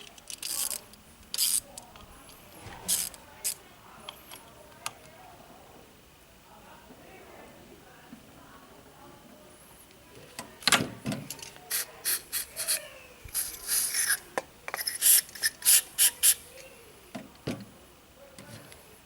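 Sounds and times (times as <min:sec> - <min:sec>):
hand ratchet rasping strokes: 0:11.7 - 0:16.4.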